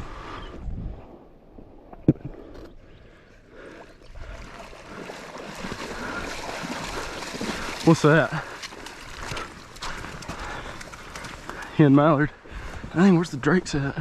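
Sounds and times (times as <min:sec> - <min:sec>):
water sloshing and splashing: 0:03.6 - 0:11.7.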